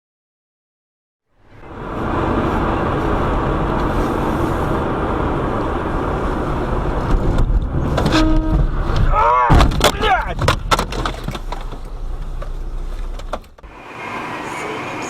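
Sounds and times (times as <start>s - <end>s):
road traffic noise: 1.3s - 15.0s
short horn-like tone: 8.0s - 8.6s.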